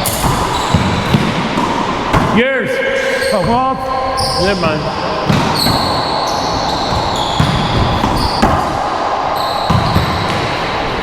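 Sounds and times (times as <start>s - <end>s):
ball bouncing off walls: 0.0s - 2.5s, 4.6s - 10.7s
racquets hitting rubber ball: 0.0s - 11.0s.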